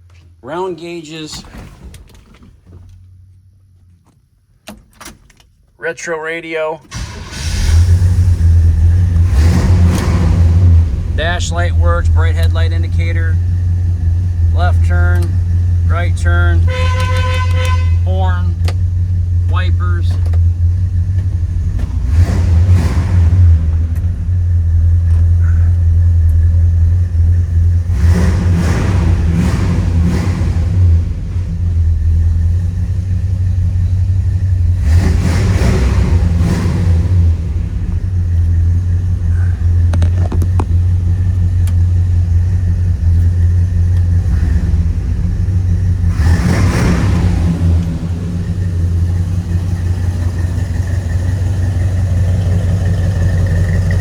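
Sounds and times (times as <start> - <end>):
car engine idling: 2.3 - 54.0.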